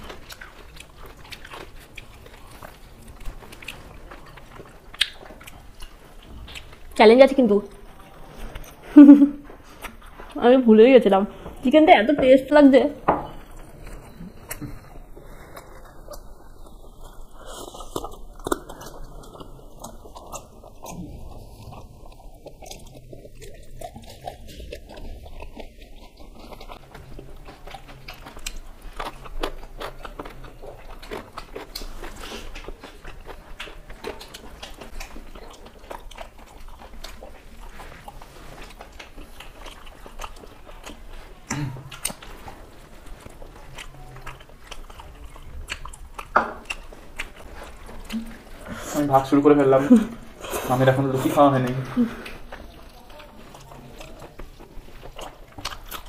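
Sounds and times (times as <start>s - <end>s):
mouth clicks and smacks: 0.0s - 6.9s
people chewing and biting food: 0.0s - 56.0s.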